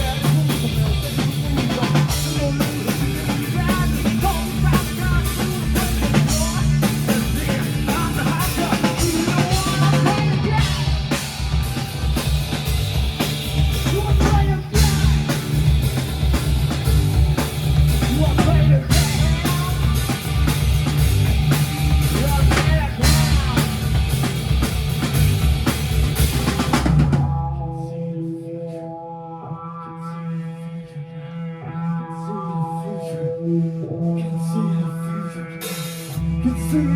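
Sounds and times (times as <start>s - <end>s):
drum kit: 0.0s - 27.6s
rock band playing: 0.0s - 27.6s, 35.6s - 36.9s.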